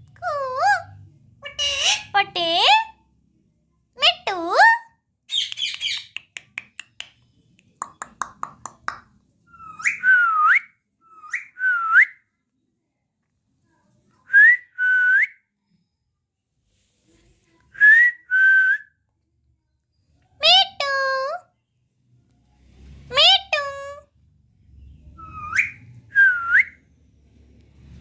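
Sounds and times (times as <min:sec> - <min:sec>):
parrot scratchy chatter: 0:05.3 - 0:06.6
parrot whistling: 0:09.5 - 0:12.0, 0:25.2 - 0:26.8.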